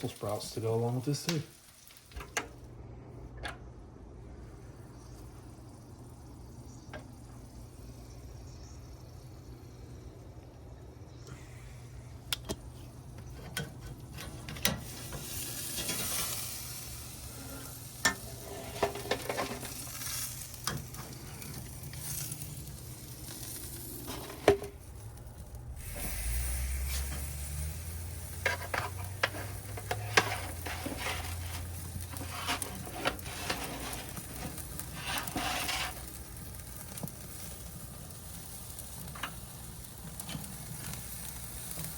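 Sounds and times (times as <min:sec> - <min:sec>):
vegetables sizzling in butter: 0:00.0 - 0:02.7, 0:14.7 - 0:41.9.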